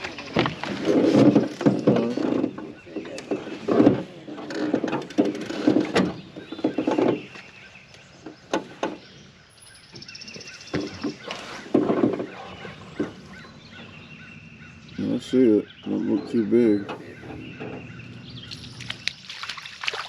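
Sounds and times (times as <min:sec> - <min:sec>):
birds honking: 0:10.4 - 0:19.8.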